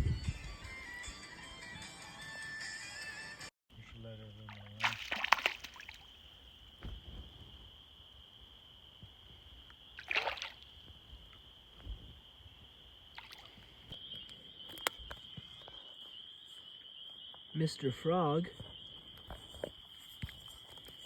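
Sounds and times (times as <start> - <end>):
water sloshing: 4.3 - 6.2, 10.0 - 10.7
frogs trilling: 12.2 - 21.0.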